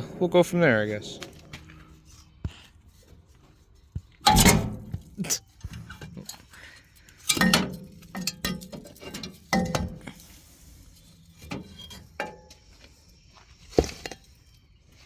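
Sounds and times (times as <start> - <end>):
metal tools clinking and knocking: 4.2 - 12.6.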